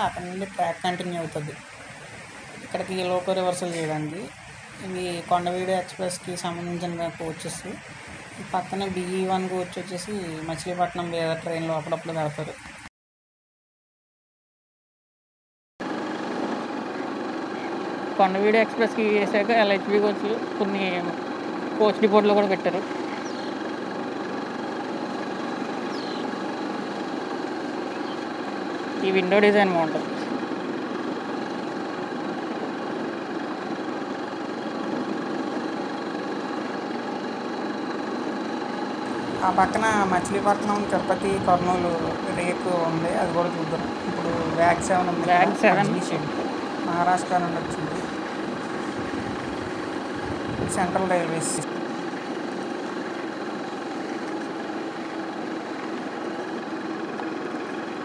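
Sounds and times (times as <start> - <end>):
steady motor hum: 0.0 - 12.8, 15.8 - 58.0
vehicle engine running: 0.0 - 12.8, 15.8 - 58.0.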